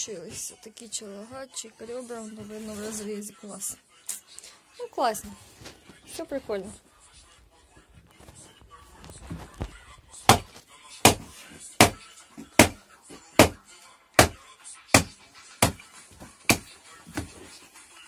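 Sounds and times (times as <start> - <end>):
heavy blade chopping bone: 12.6 - 12.8, 13.4 - 13.6, 14.2 - 14.4, 15.0 - 15.8.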